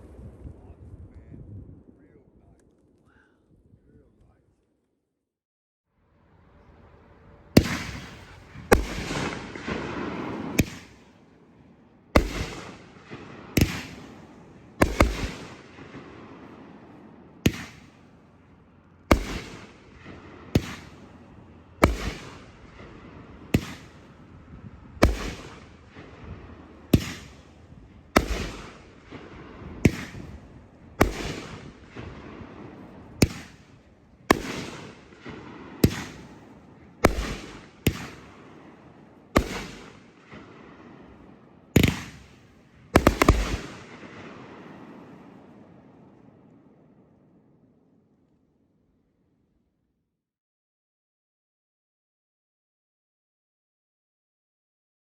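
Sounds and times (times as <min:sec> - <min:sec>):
fireworks bangs with echo: 0:07.4 - 0:46.8.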